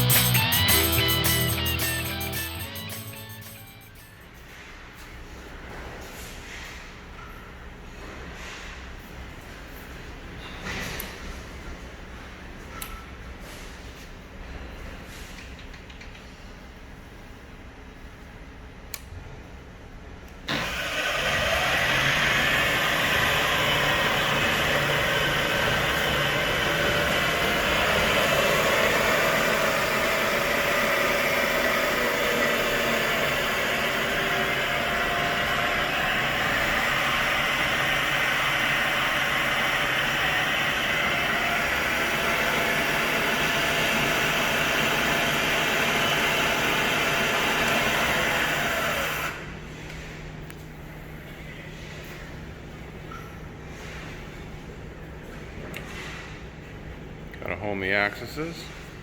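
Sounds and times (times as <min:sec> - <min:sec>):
mill spindle motor running: 0:20.4 - 0:49.8.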